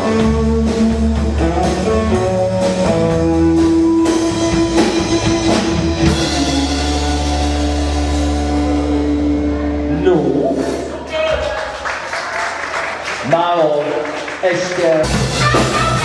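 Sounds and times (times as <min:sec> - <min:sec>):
electric guitar: 0:00.0 - 0:11.1
live rock band playing: 0:00.0 - 0:11.2, 0:14.8 - 0:16.0.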